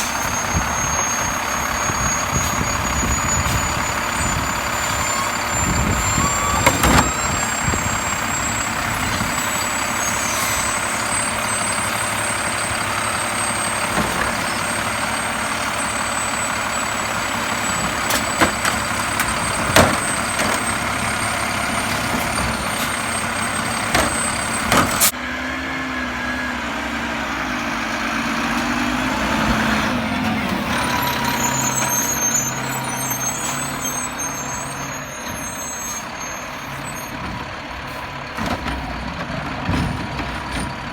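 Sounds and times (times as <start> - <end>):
garbage truck engine running: 0.0 - 40.9
sharp knocks and clanks: 17.7 - 21.0, 21.8 - 25.1.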